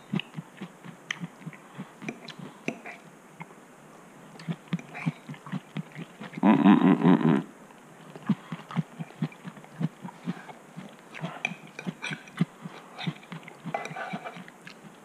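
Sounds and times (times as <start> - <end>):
person chewing food: 0.0 - 3.0, 4.4 - 6.4, 8.1 - 15.0
wet mouth clicks and smacks: 1.1 - 2.8.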